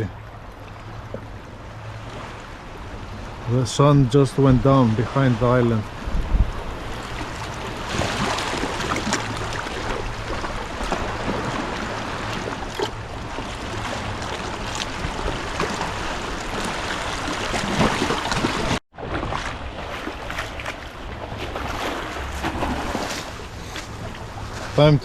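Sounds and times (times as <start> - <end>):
surf washing against rocks: 3.3 - 18.8
wind on microphone: 5.8 - 18.8.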